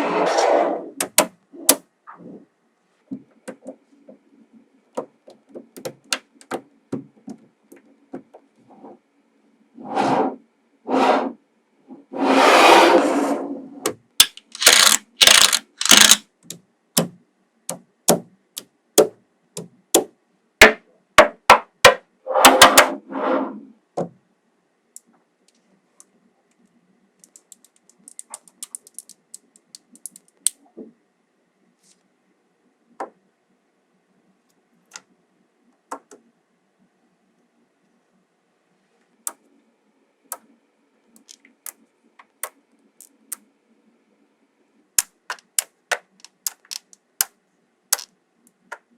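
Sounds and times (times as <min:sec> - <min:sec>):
magnetic balls clicking together: 0:01.0 - 0:01.8, 0:05.0 - 0:06.6, 0:14.2 - 0:18.7, 0:27.2 - 0:30.6, 0:41.1 - 0:43.5, 0:45.0 - 0:48.9
rattle of loose balls: 0:14.2 - 0:16.2, 0:27.2 - 0:30.4, 0:45.3 - 0:47.0.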